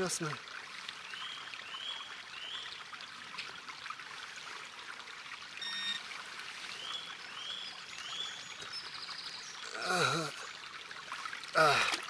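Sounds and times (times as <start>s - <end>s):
electronic beep: 5.6s - 6.0s.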